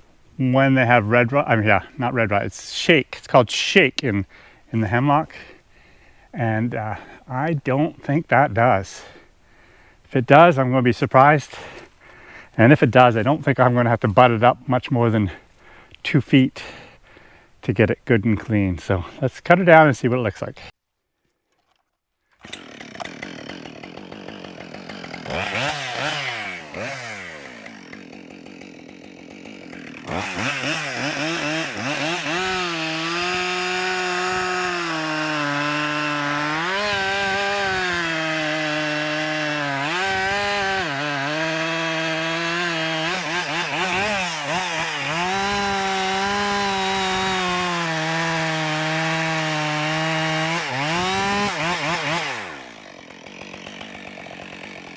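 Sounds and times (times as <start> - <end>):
chainsaw revving and cutting: 22.4 - 54.9.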